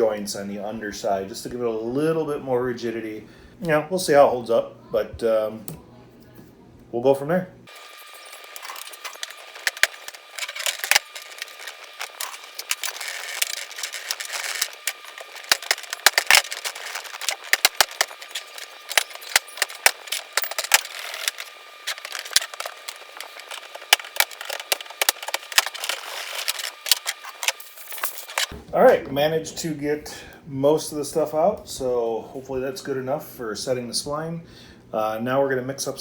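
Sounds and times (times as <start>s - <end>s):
hand tool scraping resin: 7.7s - 28.5s.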